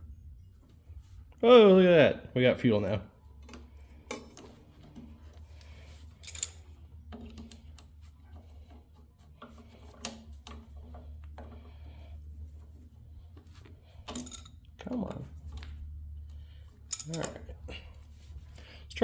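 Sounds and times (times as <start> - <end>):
low steady hum: 0.0 - 19.0
tools clicking and tapping: 3.3 - 11.7, 13.3 - 17.5.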